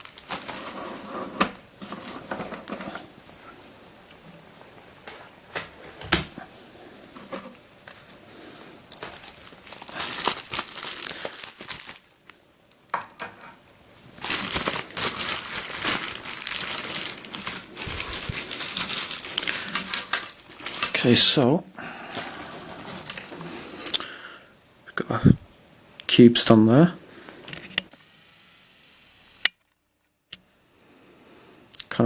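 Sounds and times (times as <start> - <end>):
packaging crinkling and tearing: 0.0 - 1.0, 8.9 - 12.8, 14.0 - 21.4, 22.8 - 24.0.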